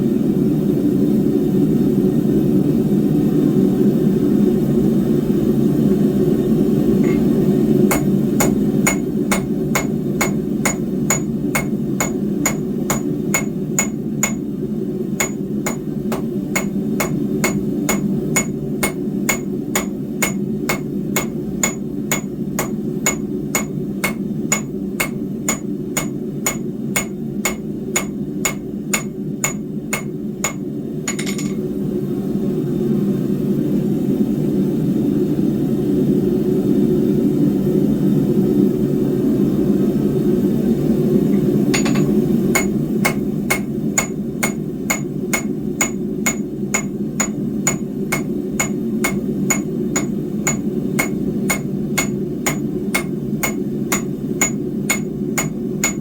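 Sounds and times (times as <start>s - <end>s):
hammer striking steel on anvil: 7.0s - 14.5s, 15.2s - 31.6s, 41.4s - 56.0s.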